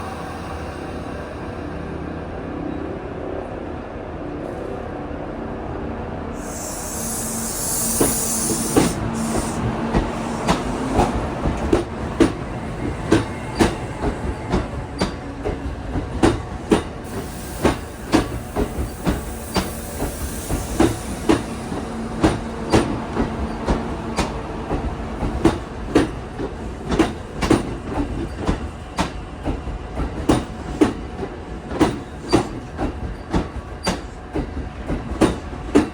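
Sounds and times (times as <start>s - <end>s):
air hiss: 6.4s - 11.2s, 17.0s - 21.8s
train wheels clicking over rail joints: 6.9s - 35.9s.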